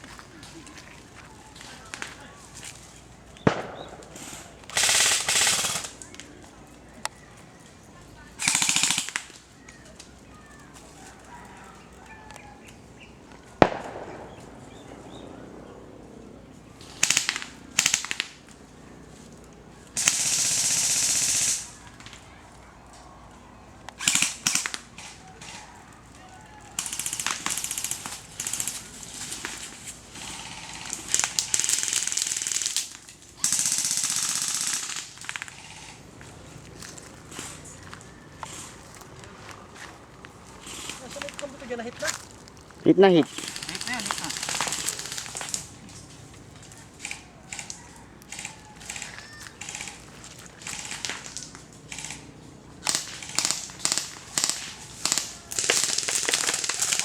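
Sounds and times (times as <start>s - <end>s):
airsoft rifle full-auto bursts: 3.4s - 6.0s, 8.4s - 9.4s, 16.9s - 18.4s, 20.0s - 21.8s, 24.0s - 25.6s, 26.8s - 36.0s, 40.6s - 41.9s, 43.0s - 45.8s, 47.0s - 57.0s
airsoft gun shot: 3.5s - 5.9s.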